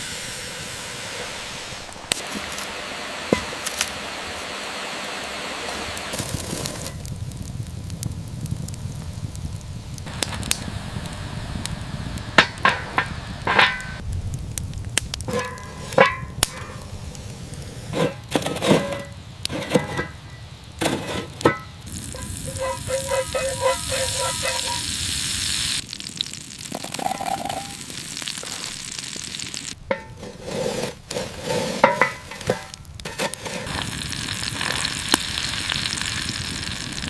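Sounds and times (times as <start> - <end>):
hiss: 0.0 - 7.0, 8.9 - 14.0, 15.3 - 18.2, 20.8 - 25.9
food sizzling over fire: 0.0 - 37.0
cooking utensils clinking: 20.8 - 24.9.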